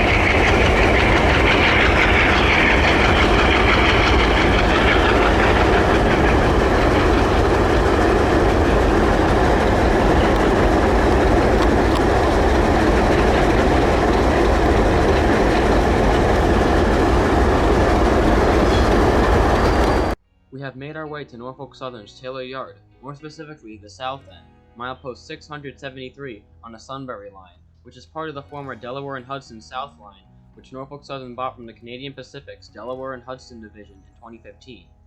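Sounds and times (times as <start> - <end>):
freight train wheels on rails: 0.0 - 20.2.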